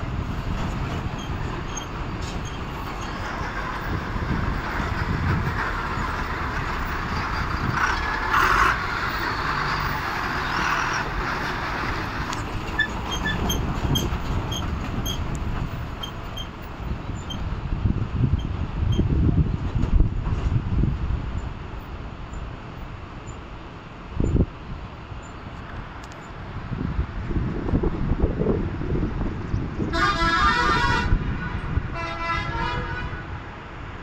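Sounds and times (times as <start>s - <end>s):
truck engine rumble: 0.0s - 34.0s
truck body rattle: 12.4s - 17.4s.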